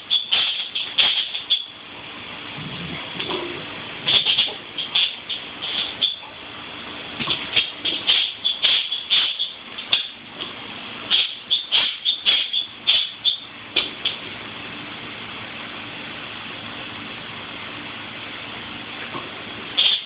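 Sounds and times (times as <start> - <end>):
faint low hum: 2.3 - 4.4
sharp rattling clatters: 4.1 - 6.2.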